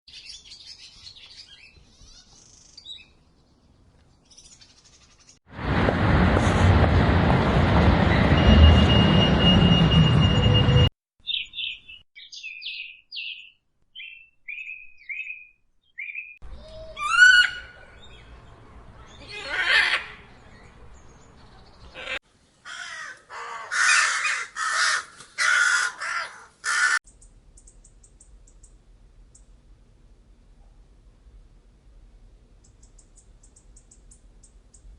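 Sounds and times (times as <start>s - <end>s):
bird chirps: 11.2s - 19.3s, 32.6s - 34.9s.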